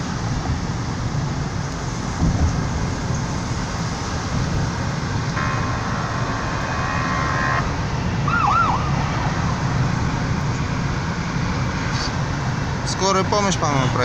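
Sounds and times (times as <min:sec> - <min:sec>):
car road rumble: 0:00.0 - 0:14.0
ambulance siren: 0:05.3 - 0:10.3.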